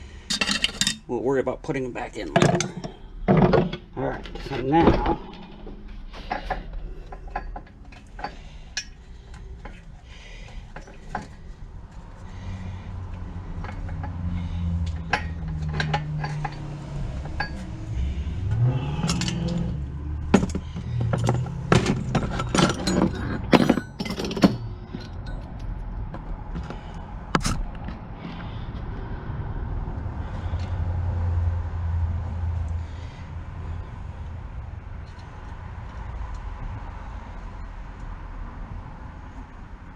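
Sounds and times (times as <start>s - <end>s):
metal tools clinking: 0.3s - 1.1s, 2.3s - 3.7s, 13.4s - 25.6s.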